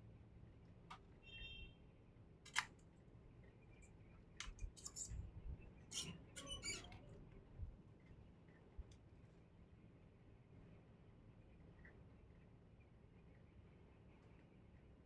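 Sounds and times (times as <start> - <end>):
hand tools clicking on circuit board: 2.5 - 2.7.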